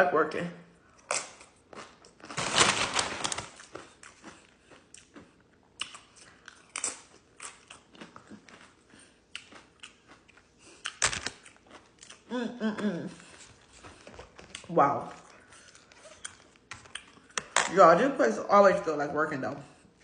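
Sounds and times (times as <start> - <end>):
person chewing food: 0.8 - 2.4, 3.5 - 17.6.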